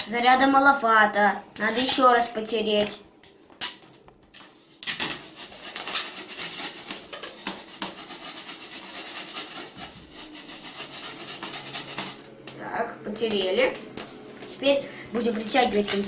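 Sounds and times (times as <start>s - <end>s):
balloon rubbing on hair: 4.4s - 12.2s.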